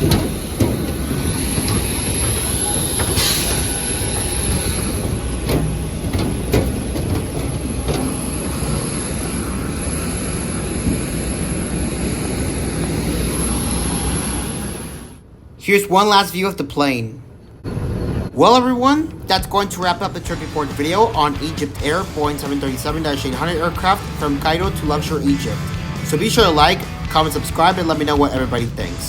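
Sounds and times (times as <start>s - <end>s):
clicks and rattles: 0.0s - 8.7s
high whine: 0.0s - 15.5s, 17.3s - 29.0s
vehicle rumbling: 0.0s - 15.6s, 17.2s - 29.0s.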